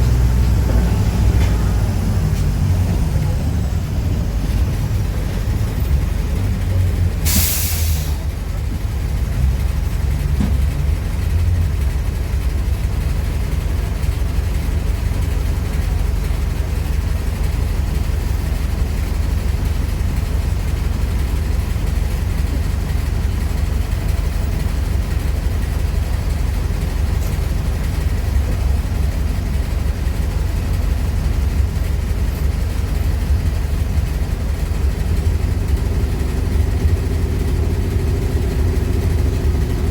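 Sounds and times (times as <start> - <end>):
bus diesel engine running: 0.0 - 39.9
air hiss: 7.2 - 8.3.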